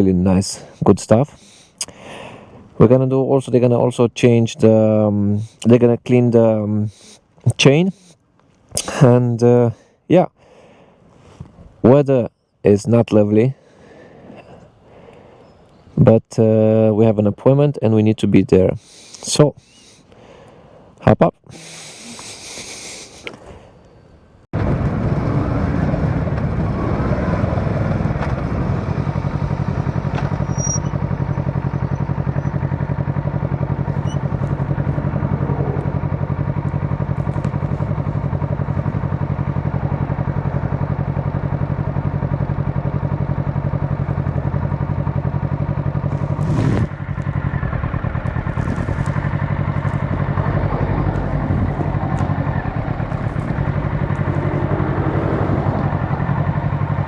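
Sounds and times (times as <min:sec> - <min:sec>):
motorcycle engine running: 0:24.6 - 0:57.0.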